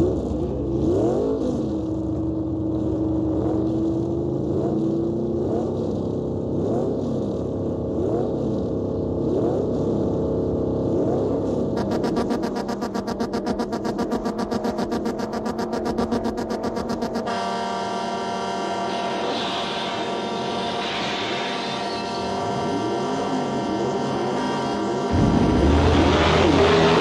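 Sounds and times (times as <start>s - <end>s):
car engine revving: 10.8s - 20.8s, 21.8s - 27.0s
rhythmic music: 11.8s - 17.3s
long steady tone: 11.8s - 27.0s.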